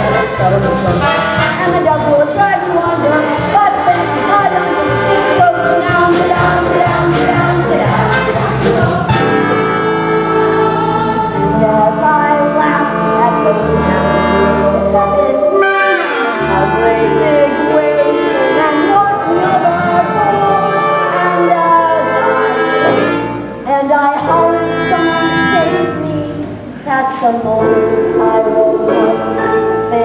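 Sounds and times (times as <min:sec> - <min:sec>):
low bass notes: 0:00.0 - 0:15.4
show tune with voices singing: 0:00.0 - 0:26.8.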